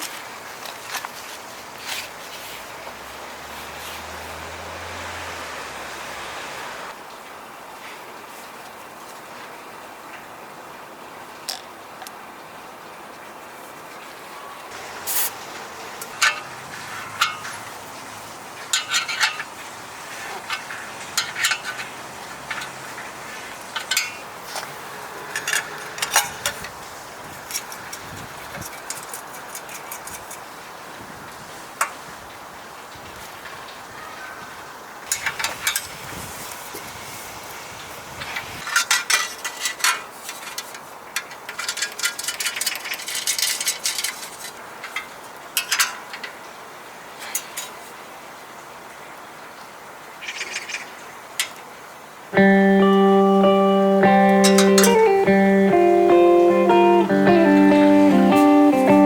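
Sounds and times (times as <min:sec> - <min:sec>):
low steady background noise: 0:00.0 - 0:59.0
light clinks and rattles: 0:38.6 - 0:46.4.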